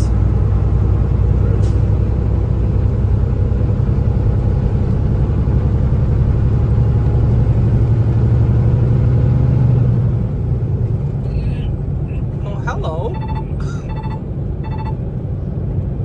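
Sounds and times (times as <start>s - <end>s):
diesel truck engine drone: 0.0s - 16.0s
road noise inside cab: 0.0s - 16.0s.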